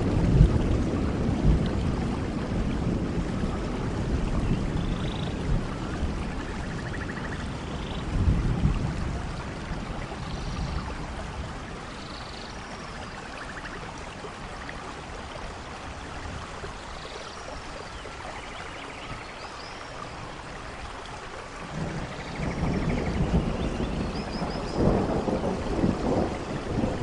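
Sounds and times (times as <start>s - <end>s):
low thunder rumble: 0.0s - 12.0s, 21.6s - 27.0s
steady rain falling: 0.0s - 27.0s.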